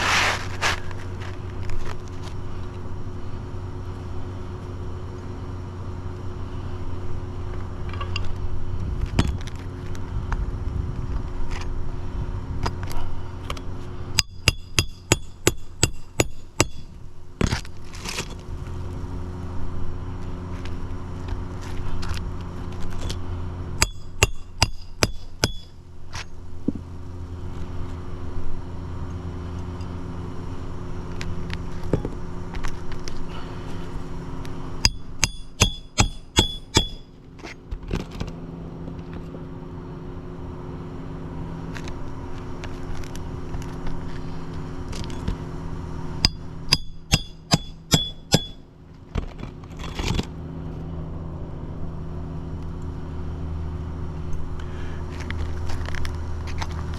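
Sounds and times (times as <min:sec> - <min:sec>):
low engine hum: 0:00.0 - 0:56.9
hammer blows on a shingle roof: 0:14.2 - 0:17.0, 0:34.9 - 0:37.1, 0:46.2 - 0:48.6.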